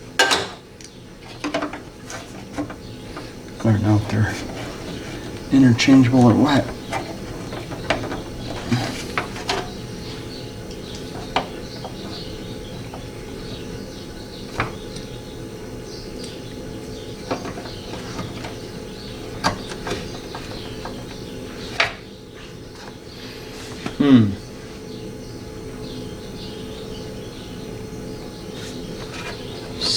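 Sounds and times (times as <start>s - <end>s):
birds chirping faintly: 0.0s - 29.9s
steady background hum: 0.0s - 29.9s.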